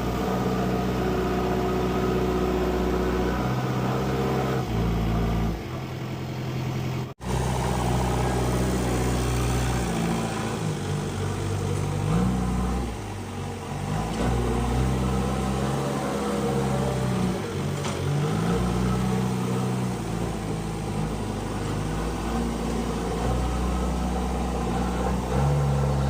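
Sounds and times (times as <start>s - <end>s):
diesel engine revving: 0.0s - 26.0s.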